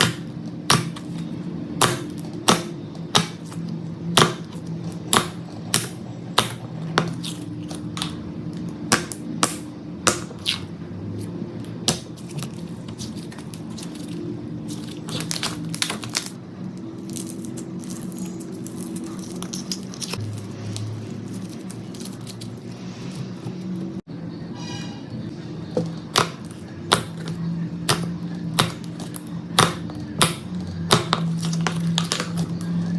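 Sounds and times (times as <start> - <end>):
slime squishing: 11.6 - 23.5, 25.8 - 32.8.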